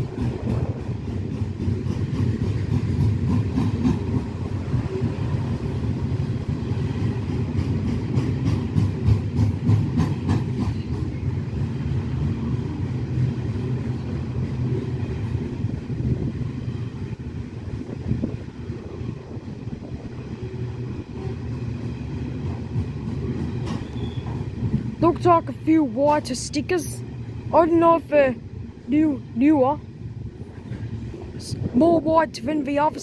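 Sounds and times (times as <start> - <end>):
wheels clacking over rails: 0.0 - 15.5, 21.2 - 25.2
freight train rumbling past: 0.0 - 33.0.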